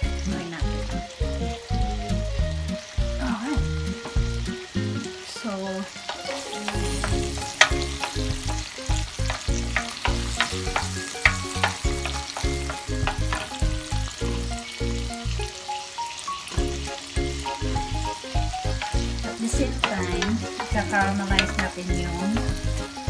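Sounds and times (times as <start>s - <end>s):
background music with steady beat: 0.0s - 5.1s, 6.0s - 15.5s, 16.5s - 23.0s
onions sizzling in a pan: 0.0s - 23.0s
wooden spoon scraping a pan: 6.0s - 14.6s, 16.6s - 23.0s.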